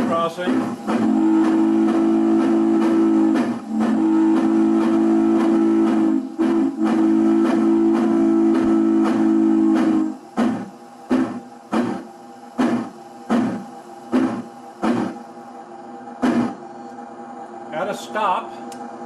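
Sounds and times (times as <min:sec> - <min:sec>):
steam locomotive chime whistle: 0:00.0 - 0:10.2
faint locomotive chuffing: 0:00.0 - 0:15.4.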